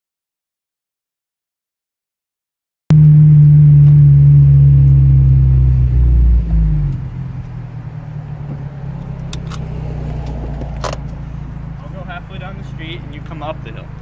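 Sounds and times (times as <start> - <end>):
car engine and exhaust: 2.9 - 14.0.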